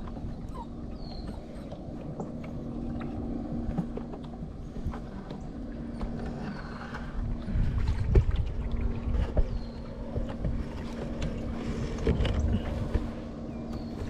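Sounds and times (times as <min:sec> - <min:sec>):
boat engine hum: 0:00.0 - 0:14.0.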